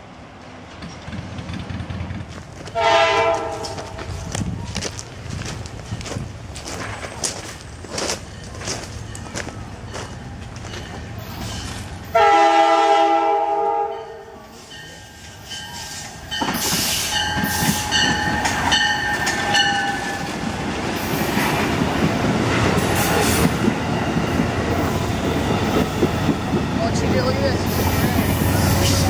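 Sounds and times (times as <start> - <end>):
train wheels clattering on rails: 0.6 - 12.2, 14.8 - 29.0
train horn blasts: 2.7 - 4.1, 12.1 - 14.4.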